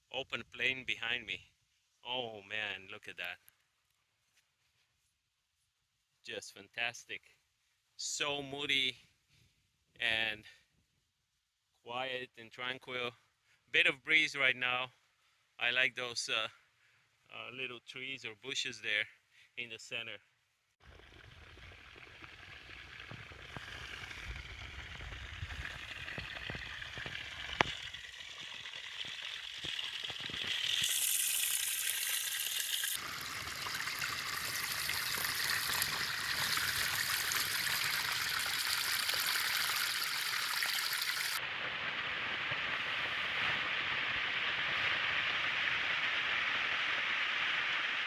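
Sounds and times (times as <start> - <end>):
rushing water: 20.8 - 48.0
wind rumble on microphone: 21.1 - 27.9.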